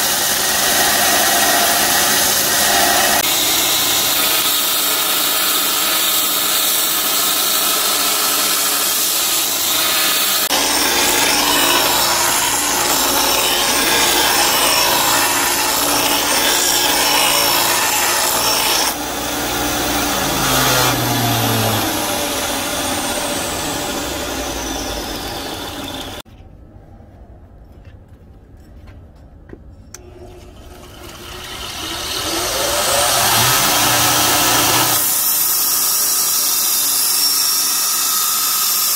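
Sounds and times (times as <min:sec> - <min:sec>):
belt grinder grinding blade: 0:00.0 - 0:26.2, 0:30.0 - 0:38.9
grinder motor whine: 0:09.4 - 0:26.2, 0:30.1 - 0:35.0.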